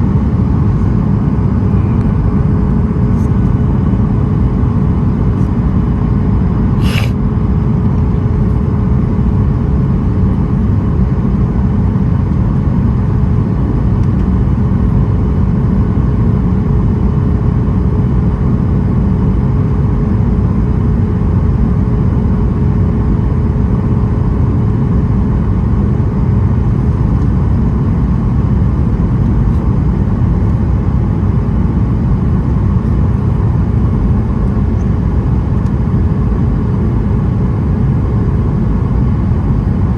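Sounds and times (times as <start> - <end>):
short high click: 6.8 - 7.2.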